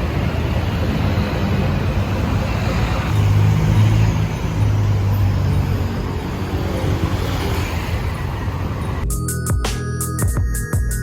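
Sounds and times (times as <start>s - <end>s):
road traffic rumble: 0.0s - 9.5s
electronic music with hard beat: 9.0s - 11.0s.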